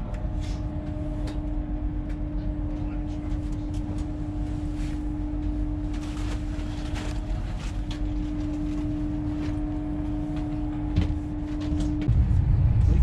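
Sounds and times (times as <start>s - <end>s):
train electrical hum: 0.0s - 13.0s
low rumble: 3.8s - 13.0s.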